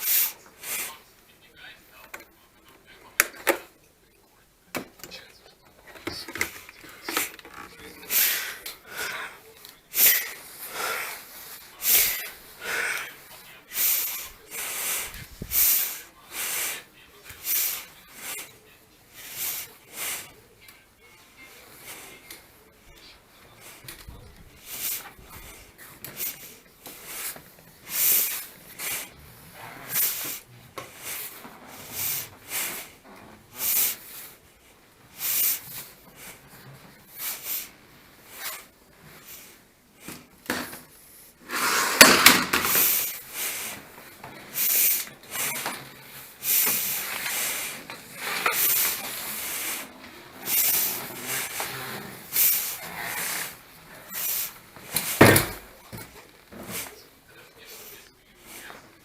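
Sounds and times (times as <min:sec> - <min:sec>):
hand scraping on hard surface: 0:41.4 - 0:42.1.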